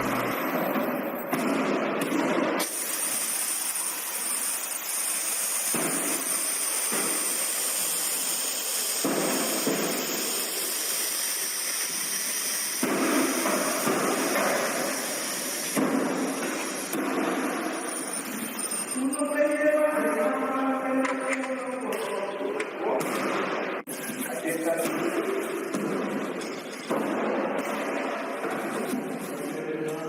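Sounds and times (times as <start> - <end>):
loud hissing machine: 2.6 - 19.0.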